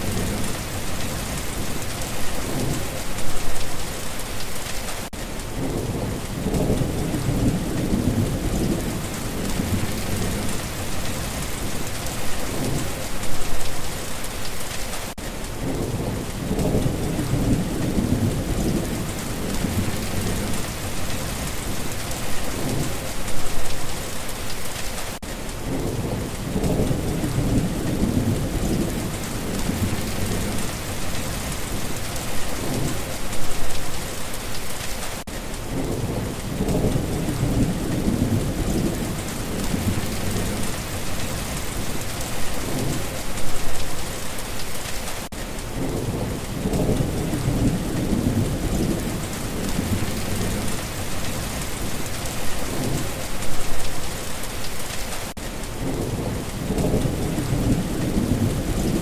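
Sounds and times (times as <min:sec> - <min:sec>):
steady rain hiss: 0:00.0 - 0:59.0
rolling thunder: 0:05.5 - 0:13.5, 0:15.6 - 0:23.6, 0:25.6 - 0:33.7, 0:35.7 - 0:43.8, 0:45.7 - 0:53.7, 0:55.8 - 0:59.0.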